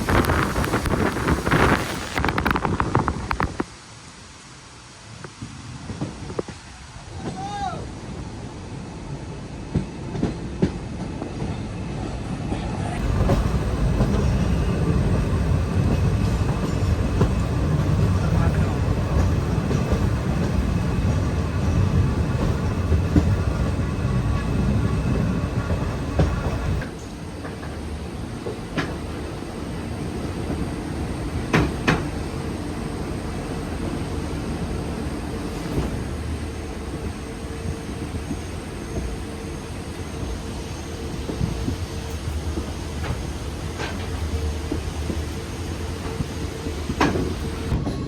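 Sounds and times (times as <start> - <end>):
train wheels clacking on rails: 13.0 - 48.0.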